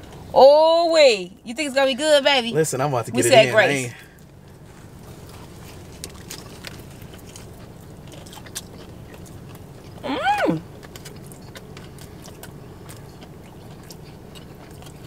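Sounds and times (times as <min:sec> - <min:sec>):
crunchy chewing: 0:04.2 - 0:15.0
person humming: 0:10.0 - 0:10.6.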